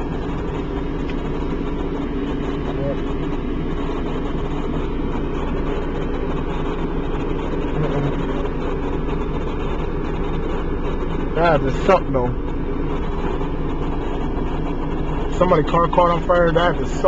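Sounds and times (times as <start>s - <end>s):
fire engine idling: 0.0s - 17.0s.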